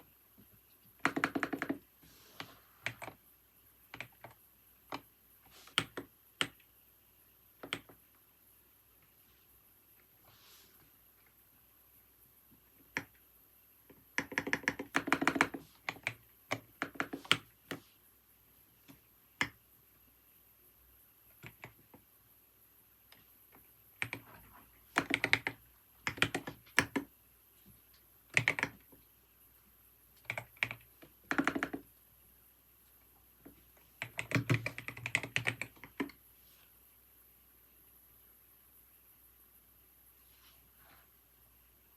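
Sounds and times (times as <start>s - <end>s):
typing on computer keyboard: 0.8s - 1.9s, 2.8s - 3.2s, 3.9s - 5.1s, 5.7s - 6.7s, 7.6s - 8.0s, 13.9s - 17.8s, 21.3s - 22.0s, 23.5s - 24.3s, 24.9s - 27.1s, 28.3s - 29.0s, 30.2s - 31.9s, 34.0s - 36.2s.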